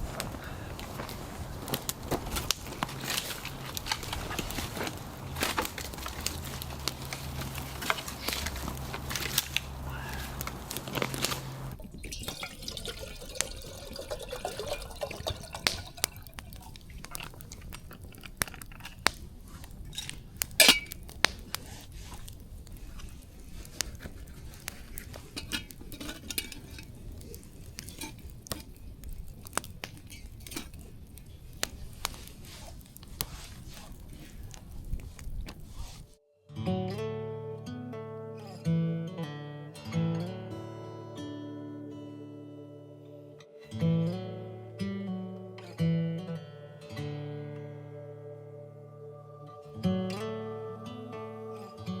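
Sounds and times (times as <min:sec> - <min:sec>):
burning wood crackling: 0:00.0 - 0:36.2.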